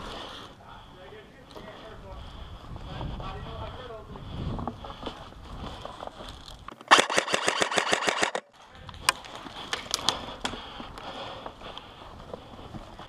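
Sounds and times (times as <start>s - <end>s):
airsoft gun full-auto burst: 6.8s - 8.5s.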